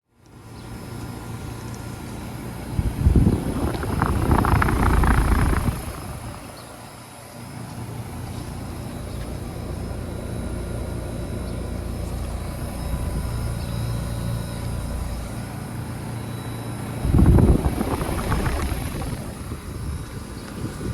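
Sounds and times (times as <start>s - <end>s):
air conditioner compressor hum: 0.1s - 20.9s
rush of noise: 2.7s - 6.6s, 17.0s - 19.8s.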